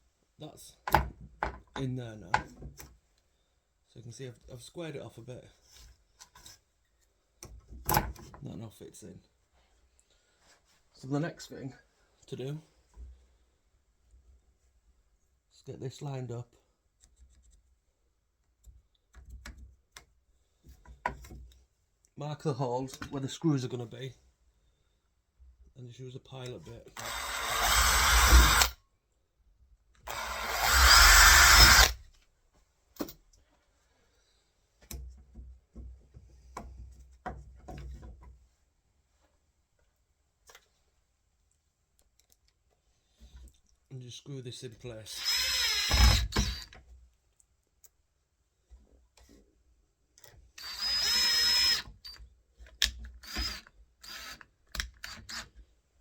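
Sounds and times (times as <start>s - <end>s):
power drill drilling: 27.0s - 28.8s, 30.0s - 32.0s, 45.2s - 46.7s, 50.6s - 52.2s, 53.2s - 54.4s, 55.0s - 55.4s.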